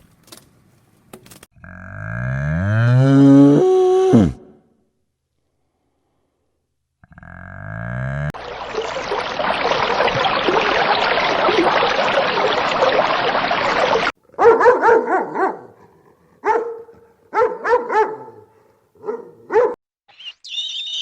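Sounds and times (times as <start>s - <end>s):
dog yapping barks: 14.3s - 15.7s, 16.4s - 19.8s.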